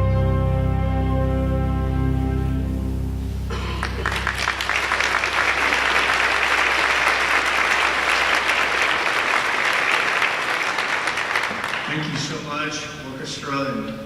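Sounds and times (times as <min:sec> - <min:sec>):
audience applauding: 0:03.5 - 0:12.6.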